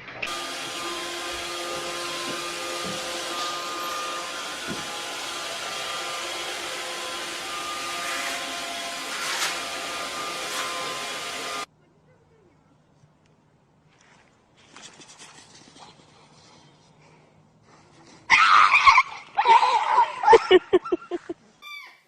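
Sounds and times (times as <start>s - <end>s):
small electric motor whirring: 0.2s - 11.7s.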